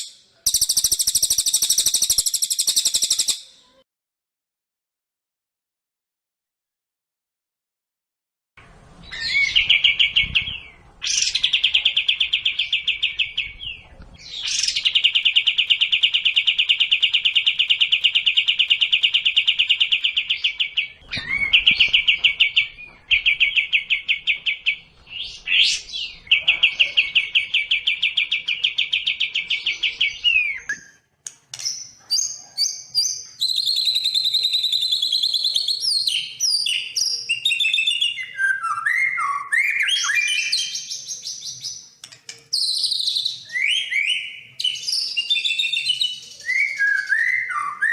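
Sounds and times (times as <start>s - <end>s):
songbird fast trills: 0.0s - 3.5s
songbird whistled notes: 0.0s - 3.6s, 31.7s - 41.5s, 42.6s - 47.9s.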